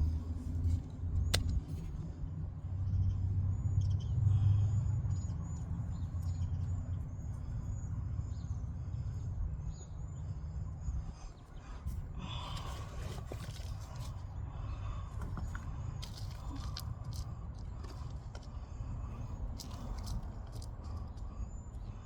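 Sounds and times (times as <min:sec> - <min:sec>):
small birds chirping: 0:02.8 - 0:22.0
close rustling and scraping: 0:11.9 - 0:14.3, 0:15.2 - 0:18.6.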